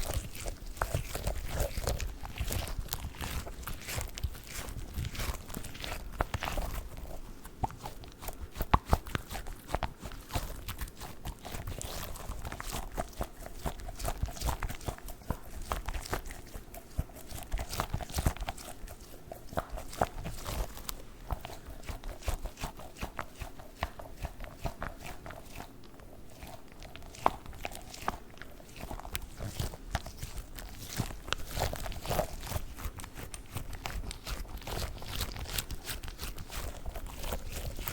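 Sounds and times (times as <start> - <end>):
squishy dog toy squeezed: 26.3 - 37.9.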